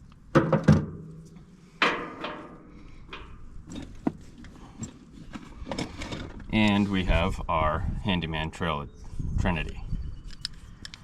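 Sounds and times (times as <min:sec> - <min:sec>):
metal panel clanking: 0:00.4 - 0:04.3.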